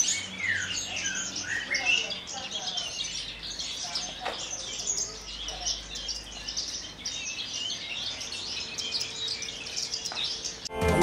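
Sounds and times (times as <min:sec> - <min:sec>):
bird warbling song: 0:00.0 - 0:10.7
music: 0:10.7 - 0:11.0.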